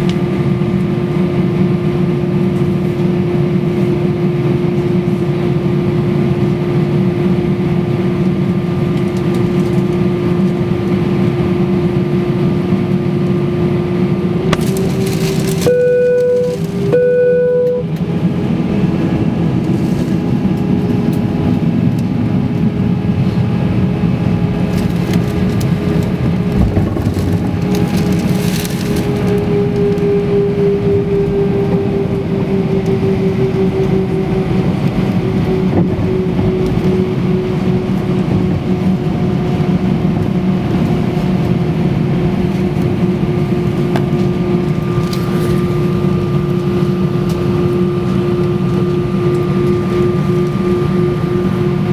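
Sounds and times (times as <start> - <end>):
constant hum tone: 0.0 - 51.9
jet engine roar in cabin: 0.0 - 51.9
low rumble: 14.2 - 41.0.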